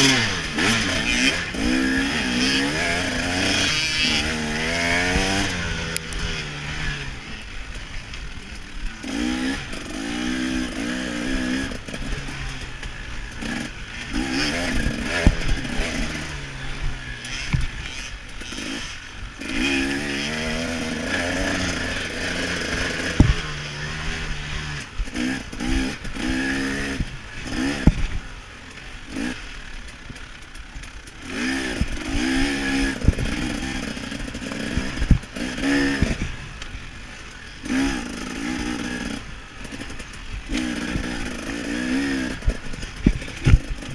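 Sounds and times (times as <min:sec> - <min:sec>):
two-stroke engine revving: 0:00.0 - 0:43.9
motorbike knocking on rough ground: 0:22.7 - 0:23.6, 0:27.6 - 0:28.2, 0:39.6 - 0:43.9.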